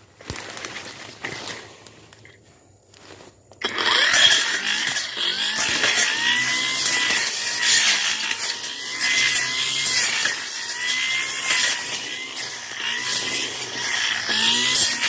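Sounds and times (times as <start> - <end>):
brush cutter engine at high revs: 3.6 - 15.0
cutting head hissing: 3.6 - 15.0.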